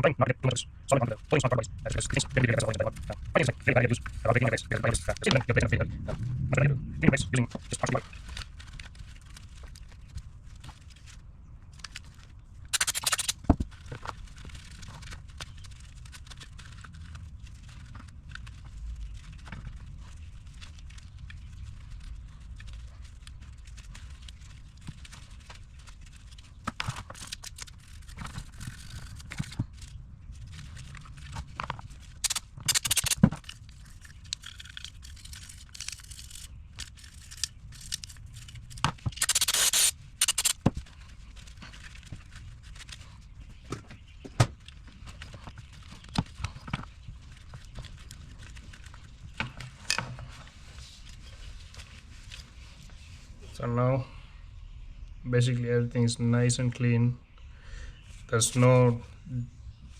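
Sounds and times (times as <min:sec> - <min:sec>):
steady low hum: 0:00.0 - 0:11.8, 0:28.6 - 0:47.2
short hissy spray bursts: 0:39.2 - 0:40.5
rubbing and scrubbing: 0:39.2 - 0:43.2.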